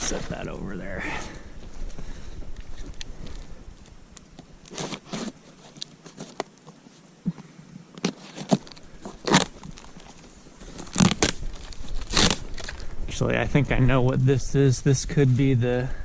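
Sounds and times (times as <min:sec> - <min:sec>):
packaging rustling and crackling: 0:02.5 - 0:06.7, 0:08.0 - 0:13.0.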